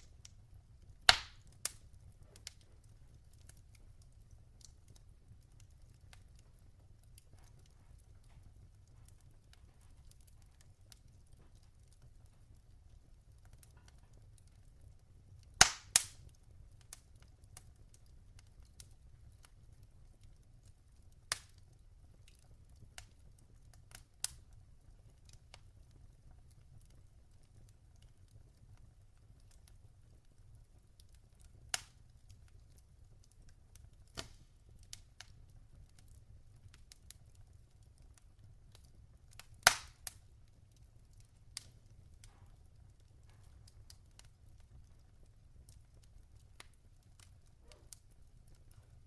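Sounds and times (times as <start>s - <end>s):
sharp fire pops: 0.0s - 0.3s, 1.0s - 2.6s, 15.6s - 16.3s, 34.0s - 35.0s, 39.3s - 40.2s, 41.6s - 42.6s
wood fire crackling: 0.0s - 49.0s.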